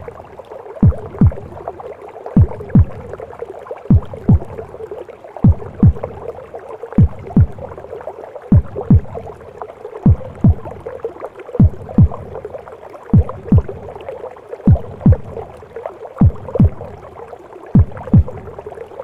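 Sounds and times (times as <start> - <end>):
whooshing gurgling womb noise: 0.0 - 19.0
heartbeat thumping: 0.8 - 1.6, 2.4 - 3.2, 3.9 - 4.7, 5.4 - 6.3, 7.0 - 7.8, 8.5 - 9.4, 10.0 - 11.0, 11.6 - 12.5, 13.1 - 14.0, 14.7 - 15.6, 16.2 - 17.0, 17.8 - 18.6.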